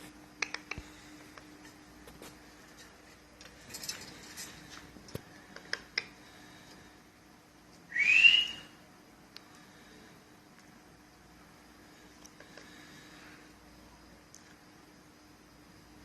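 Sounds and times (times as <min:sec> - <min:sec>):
faint clicks and taps: 0:00.4 - 0:06.8
parrot whistling: 0:07.9 - 0:08.8.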